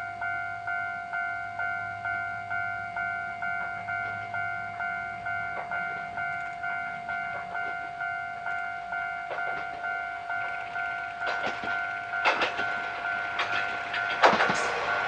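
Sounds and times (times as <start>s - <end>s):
level crossing bell ringing: 0.0s - 15.0s
train wheels clicking on rails: 3.2s - 15.0s.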